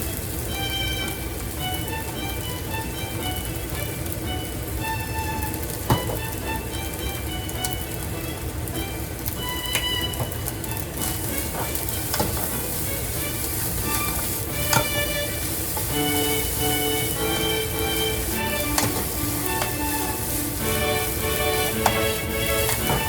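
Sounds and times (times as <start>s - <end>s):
background music: 0.0s - 23.0s
rice sizzling in a pan: 0.0s - 23.0s.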